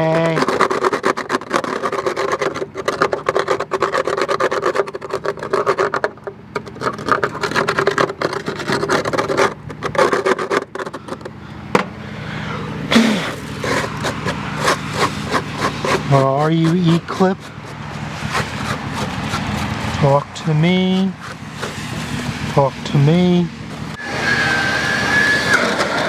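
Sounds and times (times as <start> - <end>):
rubbing: 0.0 - 11.4, 12.0 - 26.0
metal scraping: 0.0 - 26.0
steady hum: 11.0 - 26.0
rapid clicking: 13.3 - 22.6.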